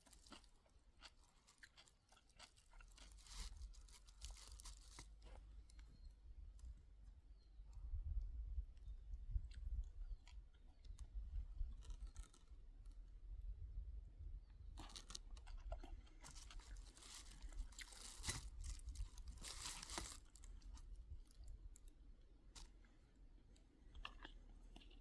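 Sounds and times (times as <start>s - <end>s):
dry material crinkling and tearing: 1.6s - 5.4s, 16.2s - 20.9s.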